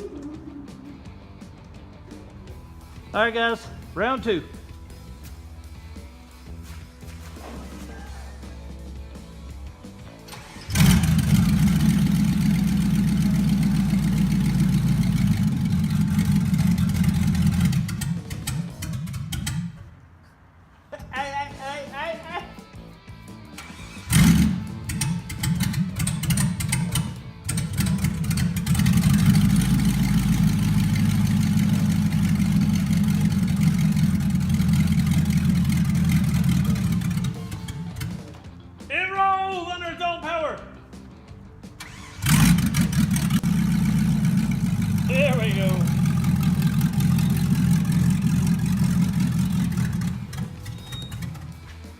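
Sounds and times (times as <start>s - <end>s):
vee eight engine starting and running: 8.7s - 20.0s, 23.3s - 38.6s, 41.6s - 51.9s.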